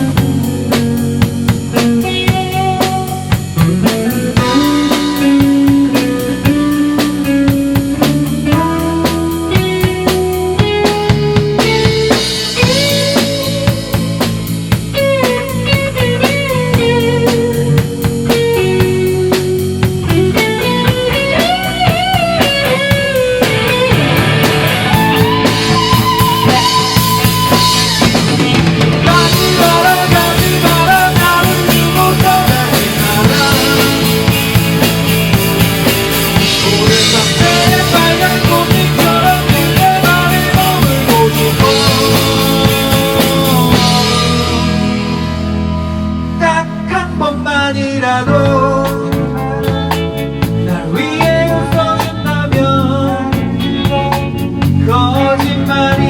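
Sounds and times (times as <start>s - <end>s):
drum kit beat: 0.0s - 46.6s, 48.3s - 56.0s
bass and guitar: 0.0s - 56.0s
bending lead guitar melody: 0.0s - 56.0s.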